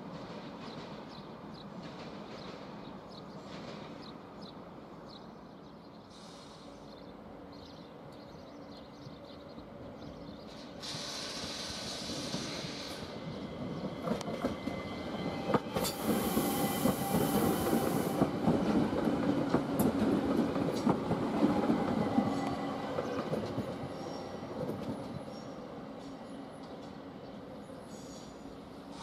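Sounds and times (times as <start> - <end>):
electric train passing: 9.6 - 29.0.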